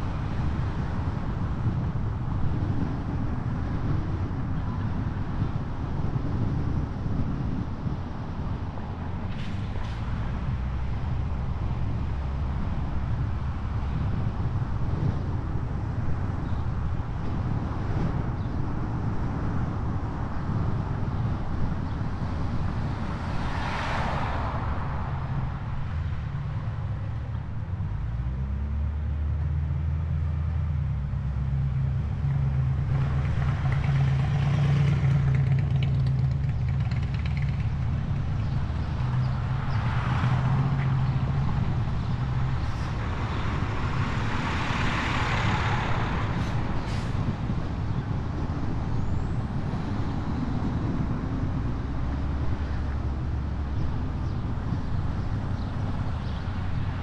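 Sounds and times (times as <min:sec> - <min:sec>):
engine humming: 0:22.9 - 0:44.5.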